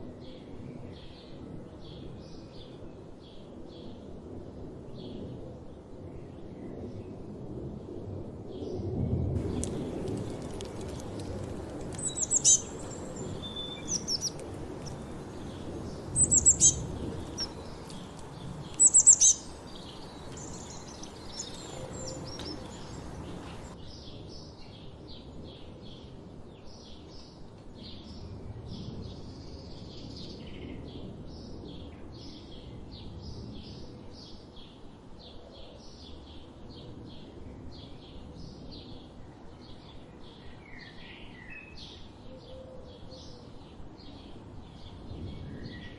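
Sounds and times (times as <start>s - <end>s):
songbirds singing and calling: 8.5s - 45.9s
loud high sharp bird calls: 12.0s - 15.0s, 16.1s - 23.8s.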